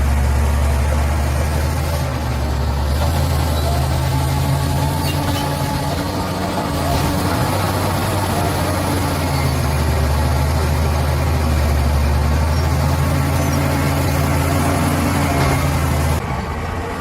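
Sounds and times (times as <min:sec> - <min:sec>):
bulldozer diesel engine running: 0:00.0 - 0:17.0.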